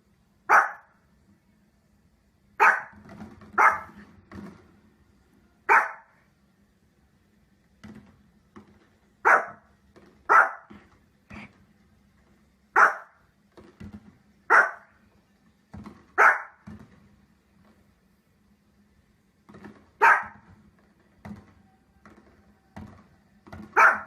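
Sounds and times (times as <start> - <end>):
dog barking: 0.5 - 1.0, 2.6 - 3.0, 3.6 - 4.0, 5.7 - 6.2, 9.2 - 9.7, 10.3 - 10.8, 12.8 - 13.2, 14.5 - 14.9, 16.2 - 16.6, 20.0 - 20.4, 23.7 - 24.0.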